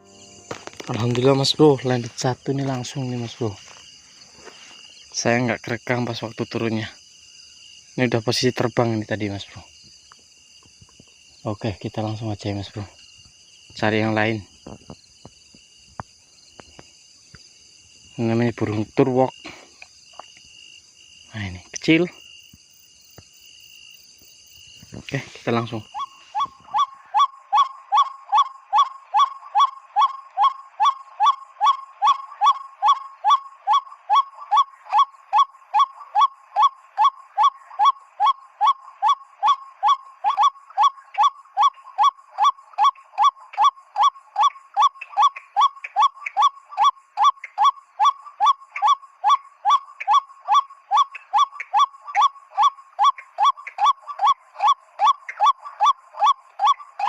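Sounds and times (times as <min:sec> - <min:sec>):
bird caller kwak notes: 0:24.8 - 0:57.0.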